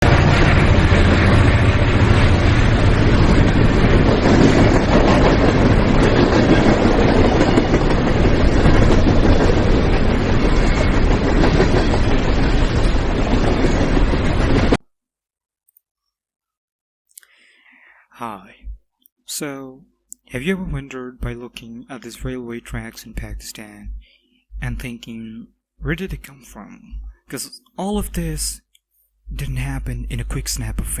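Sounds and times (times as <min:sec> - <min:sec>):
train wheels on rails: 0:00.0 - 0:14.8.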